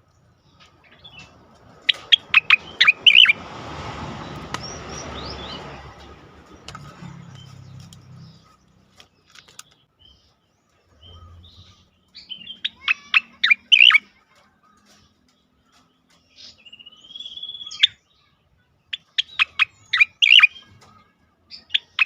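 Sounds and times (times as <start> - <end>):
bird singing rapid sharp chirps: 0.0 - 22.0
rushing noise: 1.8 - 7.4.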